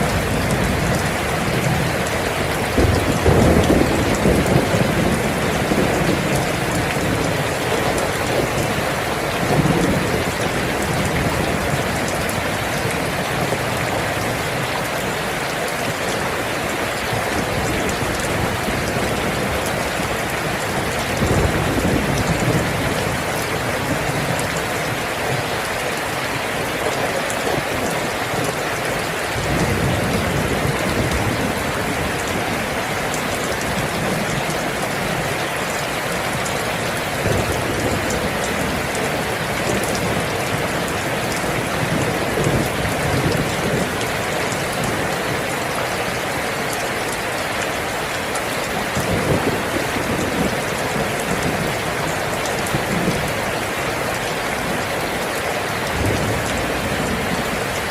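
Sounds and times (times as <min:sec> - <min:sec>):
dense rain falling: 0:00.0 - 0:57.9
low rumbles of thunder: 0:02.6 - 0:13.9.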